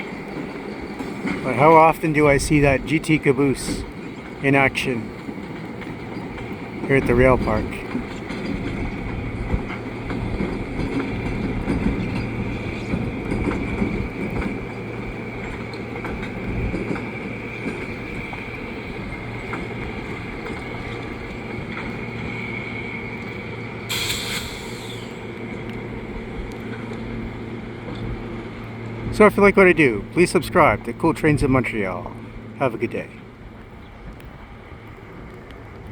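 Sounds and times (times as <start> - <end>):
diesel locomotive engine hum: 0.0 - 35.9
short noisy burst: 23.9 - 25.3.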